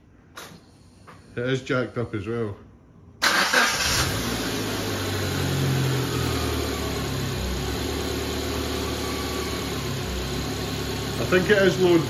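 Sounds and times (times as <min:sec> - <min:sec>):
car engine idling: 0:03.2 - 0:12.0.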